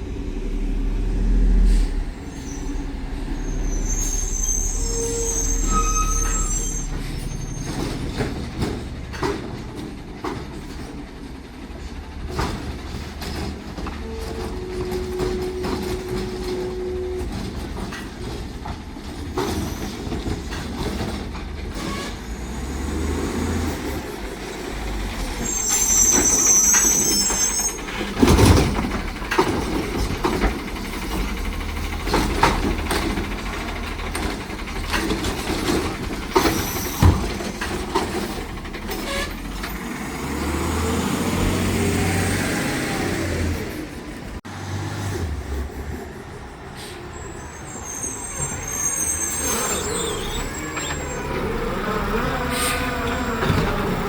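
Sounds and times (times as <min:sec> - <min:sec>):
garbage truck engine running: 0:00.0 - 0:54.0
high metallic squeal: 0:01.7 - 0:08.2, 0:25.2 - 0:28.3, 0:45.5 - 0:54.0.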